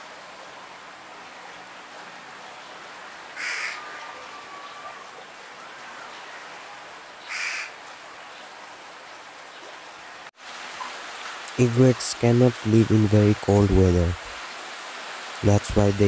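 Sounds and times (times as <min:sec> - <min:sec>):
background hiss: 0:00.0 - 0:16.0
harsh bird calls: 0:07.2 - 0:07.8.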